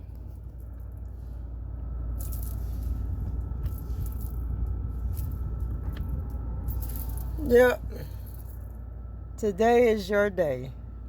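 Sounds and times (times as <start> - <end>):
steady low rumble: 0.0 - 11.0
handling noise rustles and clicks: 2.0 - 7.4.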